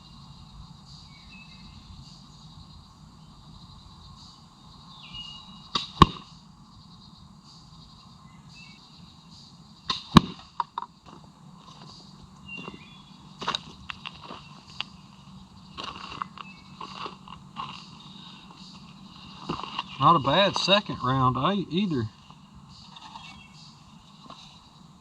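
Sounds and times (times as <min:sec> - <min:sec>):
ball cracking against target: 0:05.7 - 0:06.3, 0:09.9 - 0:10.9
slingshot snap: 0:09.9 - 0:10.5.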